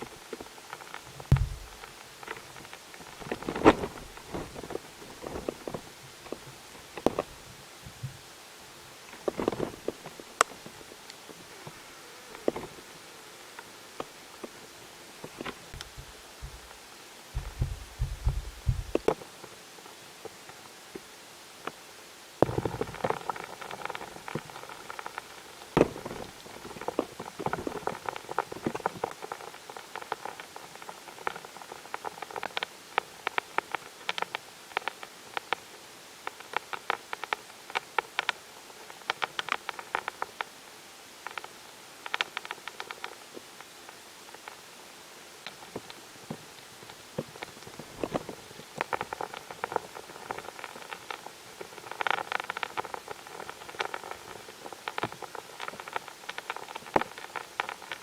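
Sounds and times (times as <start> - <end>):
steady hiss: 0.0 - 58.0
multi-tone hum: 1.2 - 1.9, 15.2 - 19.2
clicks and taps in borehole: 15.7 - 16.7, 17.4 - 19.2.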